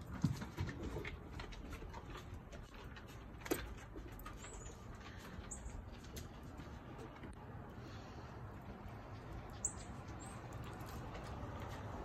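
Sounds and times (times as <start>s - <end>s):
outdoor ambience: 0.0s - 12.0s.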